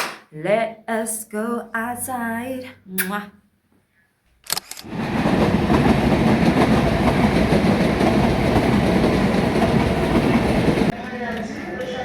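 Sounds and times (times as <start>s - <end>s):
train wheels rumbling on track: 4.9s - 11.0s.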